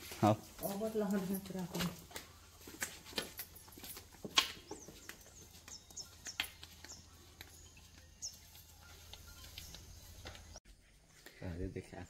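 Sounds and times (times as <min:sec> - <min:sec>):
birds chirping: 0:00.0 - 0:10.6.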